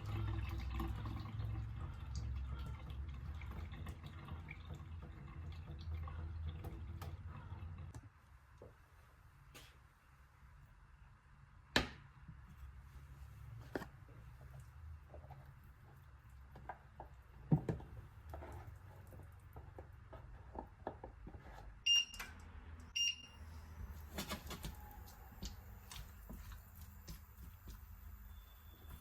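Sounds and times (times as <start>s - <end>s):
short electronic beeps: 21.9s - 22.2s, 23.0s - 23.4s.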